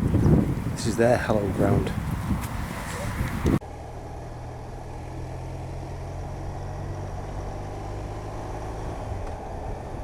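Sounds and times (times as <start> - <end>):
speech: 0.8 - 2.0.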